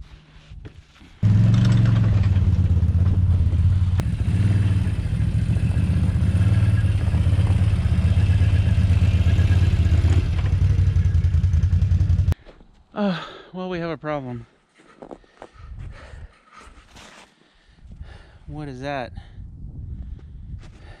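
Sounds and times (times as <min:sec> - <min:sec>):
atv engine running: 0:01.2 - 0:12.4.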